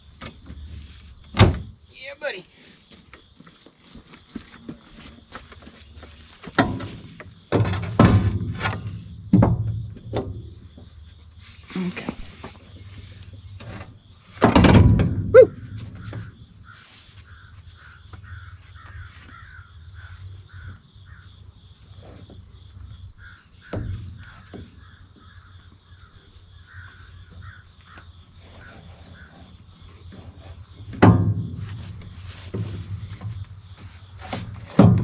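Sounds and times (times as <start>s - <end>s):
insects chirring: 0.0s - 35.0s
heavy metal clunk: 6.4s - 11.0s, 12.1s - 16.4s, 30.0s - 35.0s.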